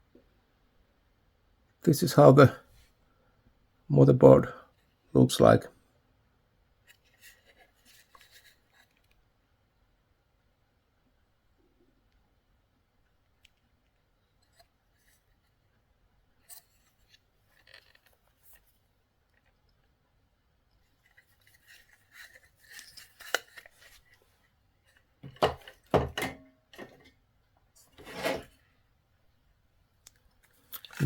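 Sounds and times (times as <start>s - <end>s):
rustling and scraping: 6.9s - 9.2s, 16.4s - 19.6s, 20.8s - 27.2s, 27.8s - 28.8s.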